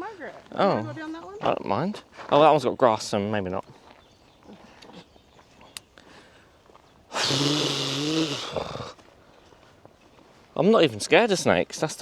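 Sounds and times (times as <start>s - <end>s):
person's breathy vocal sound: 7.1s - 9.0s.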